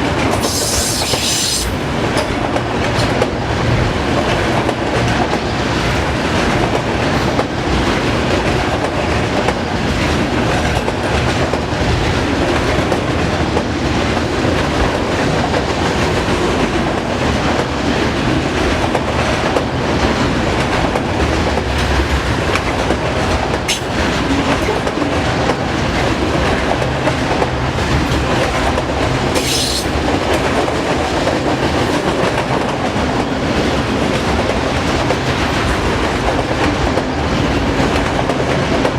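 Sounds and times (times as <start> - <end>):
high wheel squeal: 0.4 - 1.8, 29.4 - 29.9
sharp click: 23.7 - 24.0.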